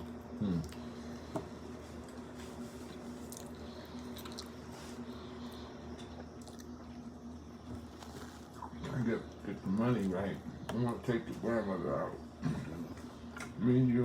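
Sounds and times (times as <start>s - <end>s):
person chewing food: 0.0s - 9.4s.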